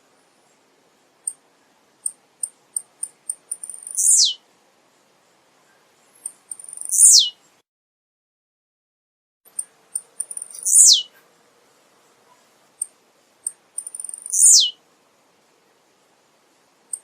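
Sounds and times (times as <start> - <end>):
bird song with high ticks: 0.4 - 4.4, 5.6 - 7.6, 9.5 - 11.3, 12.2 - 14.8.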